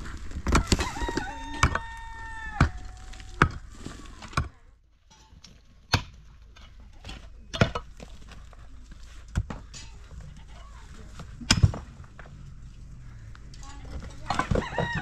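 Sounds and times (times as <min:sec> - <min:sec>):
rooster crowing: 0:00.6 - 0:03.4, 0:14.4 - 0:15.0
axe chopping wood: 0:05.9 - 0:06.2, 0:11.4 - 0:11.9.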